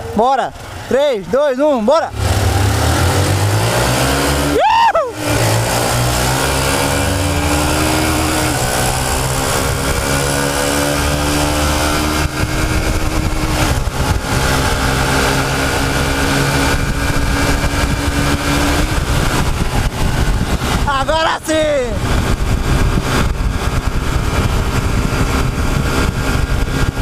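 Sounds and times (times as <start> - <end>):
motorcycles accelerating hard: 0.0 - 27.0
rising and falling tone: 2.1 - 21.2.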